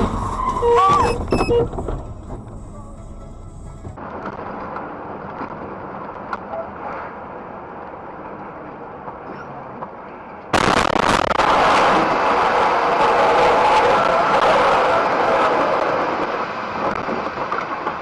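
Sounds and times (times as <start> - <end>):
road traffic noise: 0.0 - 18.0
loud rushing noise: 10.6 - 17.1.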